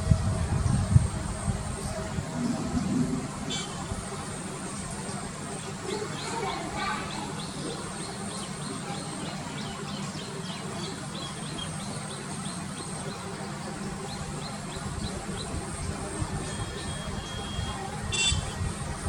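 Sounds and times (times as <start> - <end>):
steady low rumble: 0.0 - 5.9.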